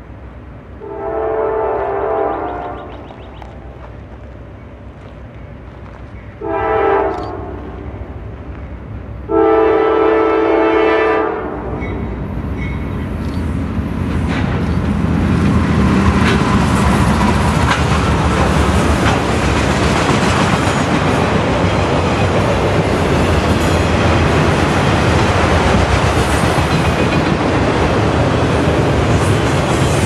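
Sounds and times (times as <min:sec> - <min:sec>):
locomotive air horn blast: 0:00.8 - 0:02.9, 0:06.4 - 0:07.7, 0:09.3 - 0:11.8
locomotives passing: 0:11.5 - 0:30.0
wheels clacking over rail joints: 0:11.8 - 0:30.0.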